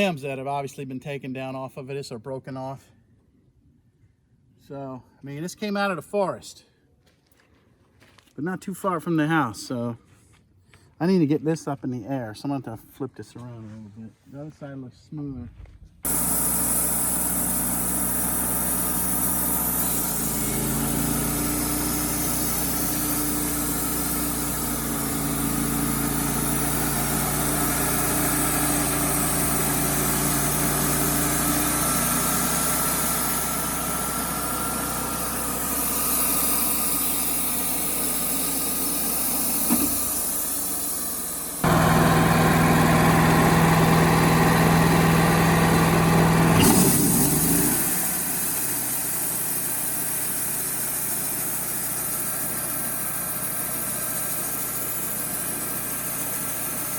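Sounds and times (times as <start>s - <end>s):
sawmill engine humming: 16.1s - 56.9s.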